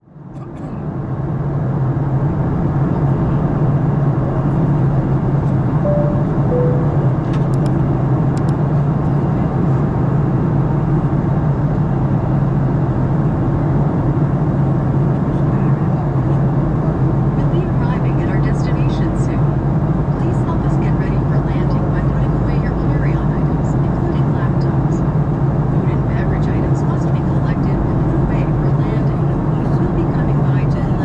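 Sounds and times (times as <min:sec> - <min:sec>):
airplane cabin drone: 0:00.1 - 0:31.0
two-note chime: 0:05.9 - 0:07.1.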